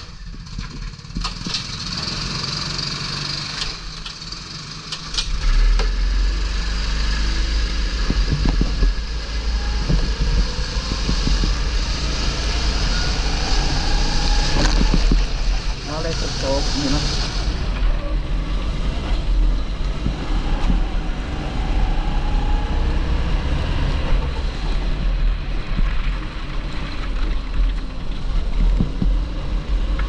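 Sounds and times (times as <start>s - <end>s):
kart engine accelerating: 0.0s - 30.0s
wind buffeting microphone: 7.2s - 30.0s.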